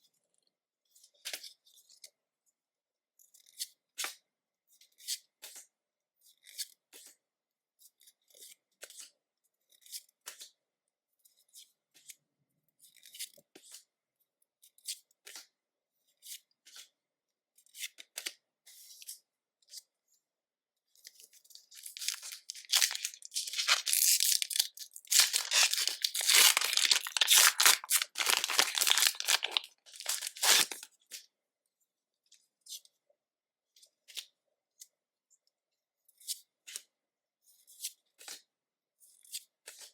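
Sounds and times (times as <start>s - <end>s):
foil wrapper crinkling and tearing: 21.7s - 30.8s.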